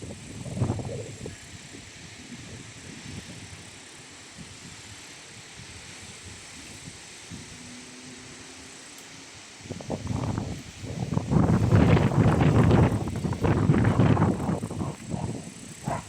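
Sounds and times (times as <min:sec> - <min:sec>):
wind buffeting microphone: 0:00.0 - 0:07.7, 0:09.4 - 0:16.0
steady hiss: 0:00.0 - 0:16.0.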